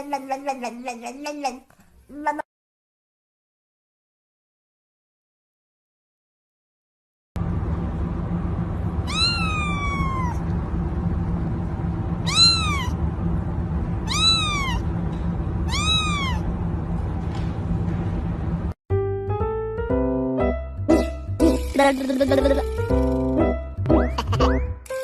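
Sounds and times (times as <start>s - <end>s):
steady low hum: 7.4s - 18.8s
cat meowing: 9.0s - 10.4s, 12.2s - 13.0s, 14.0s - 14.9s, 15.7s - 16.5s.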